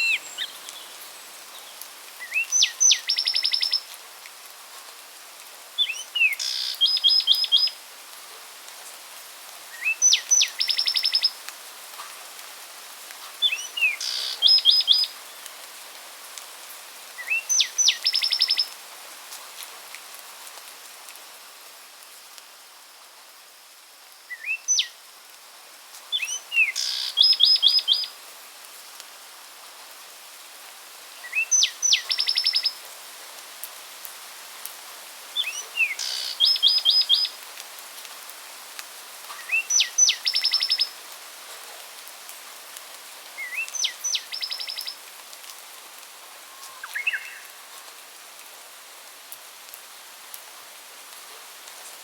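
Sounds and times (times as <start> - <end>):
songbird singing: 0.0 - 4.0, 5.8 - 7.8, 9.7 - 11.5, 13.4 - 15.5, 17.1 - 18.8, 24.2 - 25.0, 26.1 - 28.2, 31.1 - 32.8, 35.4 - 37.4, 39.3 - 41.0, 43.4 - 45.0, 46.4 - 47.7
steady background hiss: 0.0 - 52.0.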